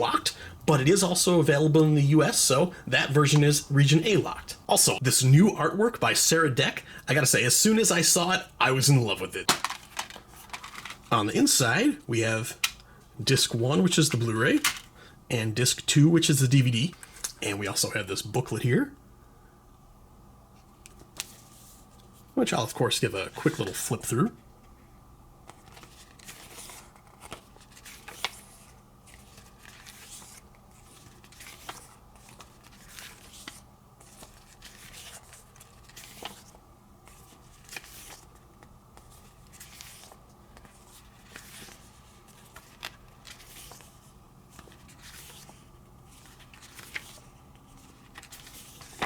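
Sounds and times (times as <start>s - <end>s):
faint room hum: 0.0s - 49.0s
paper pages turning: 9.5s - 11.2s, 25.4s - 49.0s.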